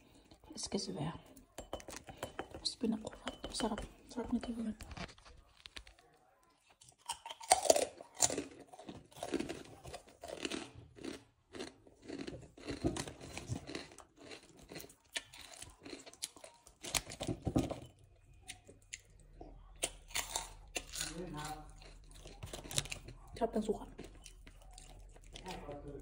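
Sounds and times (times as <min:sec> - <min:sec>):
crunchy chewing: 0:04.7 - 0:17.4, 0:18.0 - 0:26.0.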